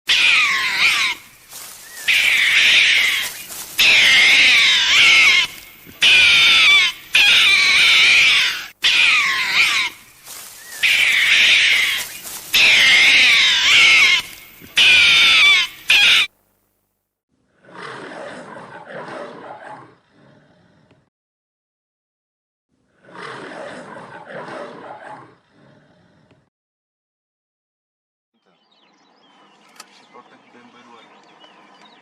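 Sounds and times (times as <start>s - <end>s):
high wavering animal cries: 0.1s - 16.3s.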